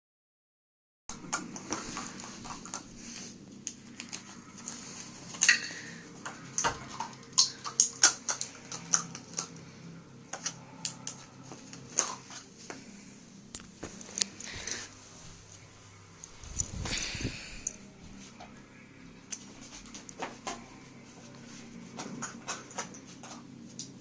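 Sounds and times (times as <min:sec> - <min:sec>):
dog claws clicking on hard floor: 0:05.4 - 0:09.6.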